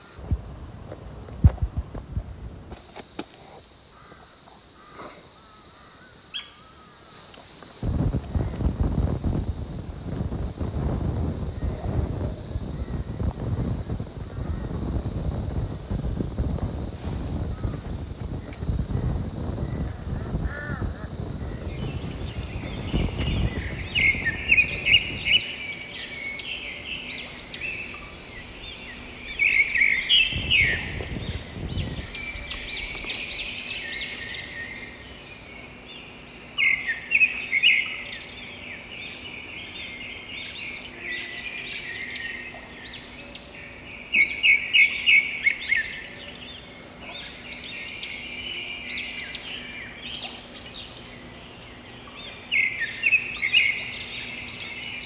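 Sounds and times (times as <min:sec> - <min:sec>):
steady high hiss: 0:00.0 - 0:55.0
wind rumble on microphone: 0:00.1 - 0:02.8, 0:07.8 - 0:25.5, 0:27.4 - 0:35.0
birds singing and chirping: 0:02.8 - 0:55.0.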